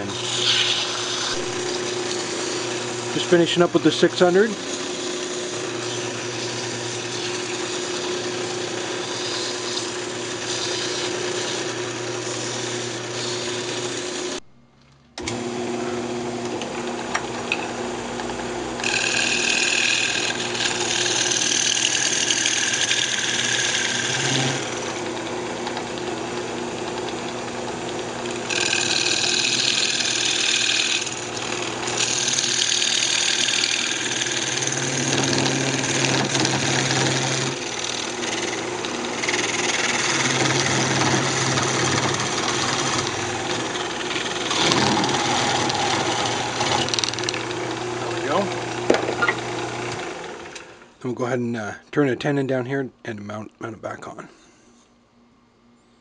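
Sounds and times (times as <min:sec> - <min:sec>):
hissing of wood being turned: 0:00.0 - 0:14.3
wood lathe humming: 0:00.0 - 0:14.4, 0:15.2 - 0:51.0.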